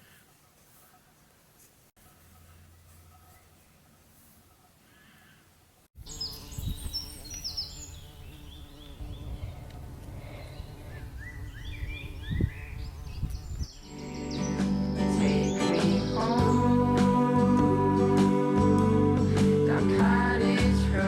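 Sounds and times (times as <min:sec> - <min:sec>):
small birds chirping: 0:02.2 - 0:16.8
soft guitar music: 0:13.9 - 0:21.0.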